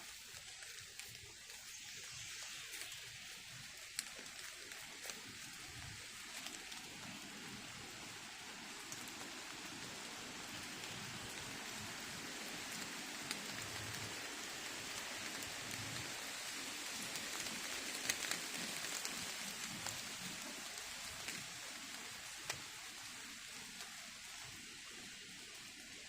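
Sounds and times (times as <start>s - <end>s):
water dripping from trees: 0.0s - 26.0s.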